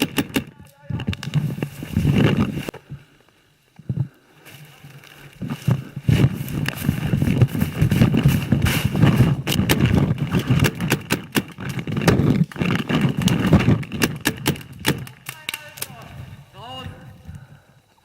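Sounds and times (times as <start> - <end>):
close rustling: 0.0 - 17.7
footsteps on forest floor: 4.4 - 10.2
gear knocking and clicking: 6.1 - 15.9.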